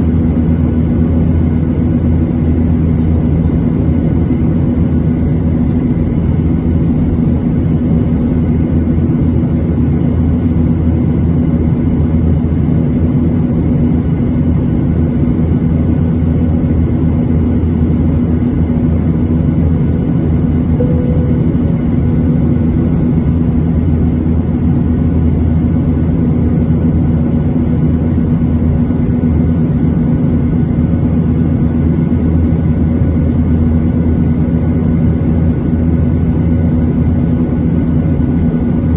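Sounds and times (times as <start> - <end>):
jet engine drone in cabin: 0.0 - 38.9
faint steady tones: 20.8 - 21.7.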